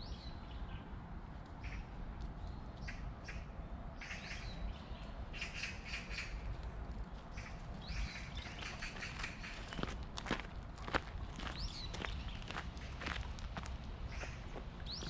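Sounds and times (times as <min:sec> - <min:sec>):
birds chirping and squawking: 0:02.8 - 0:06.5, 0:07.3 - 0:09.9, 0:14.1 - 0:15.0.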